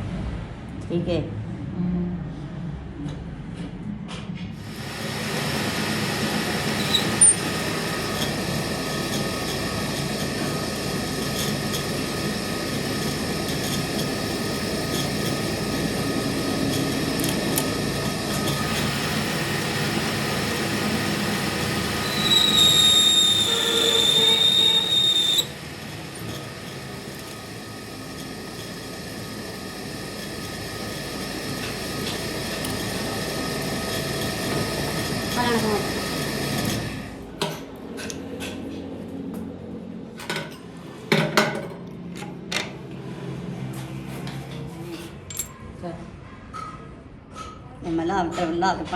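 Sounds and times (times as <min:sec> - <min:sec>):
metalworking machinery running: 0:04.6 - 0:38.6
metal-on-metal squeal: 0:06.7 - 0:10.4, 0:21.8 - 0:26.9.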